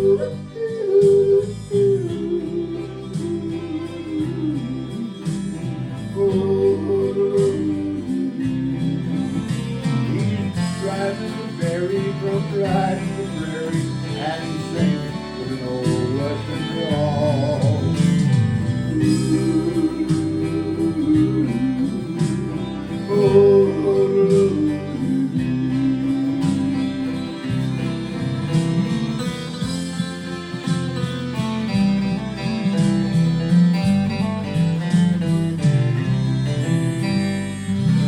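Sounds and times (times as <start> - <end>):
man singing wordlessly: 0.0 - 29.6
acoustic guitar: 0.0 - 38.0.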